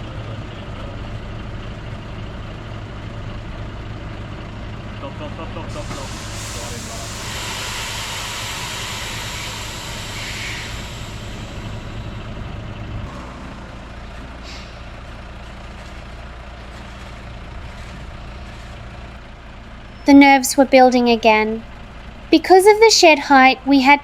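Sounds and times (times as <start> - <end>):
truck engine idling: 0.0 - 24.0
air hissing: 5.7 - 12.8.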